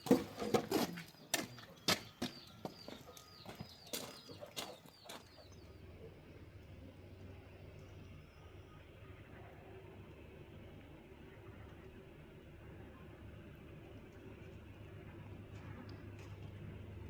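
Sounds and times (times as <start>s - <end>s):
farmyard birds chirping: 0.0s - 10.2s
faint low hum: 0.0s - 17.0s.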